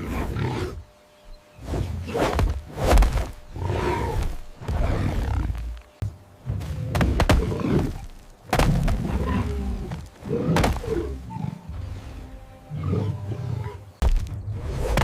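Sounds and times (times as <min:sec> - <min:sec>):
dramatic background music: 0:08.6 - 0:15.0.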